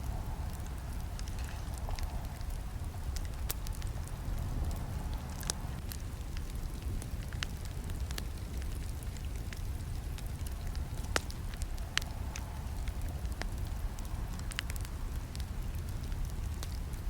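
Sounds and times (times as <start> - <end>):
campfire flames rumbling: 0.0 - 17.0
fire crackling and popping: 0.0 - 17.0.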